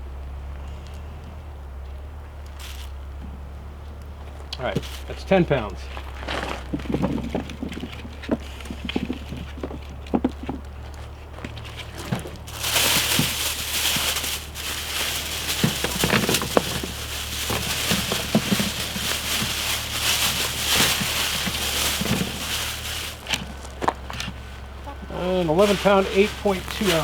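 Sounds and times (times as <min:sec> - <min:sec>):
bag rustling and crinkling: 0:05.8 - 0:27.0
small knocks: 0:05.8 - 0:27.0.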